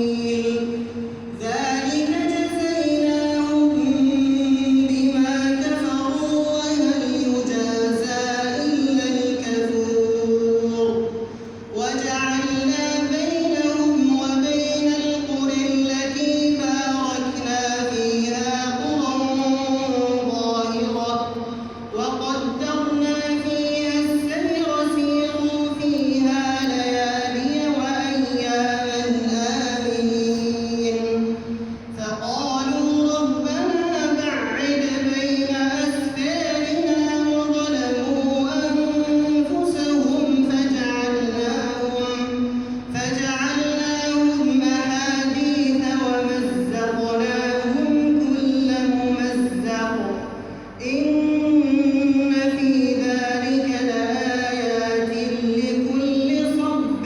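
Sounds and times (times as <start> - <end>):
man chanting melodically: 0.0 - 57.0.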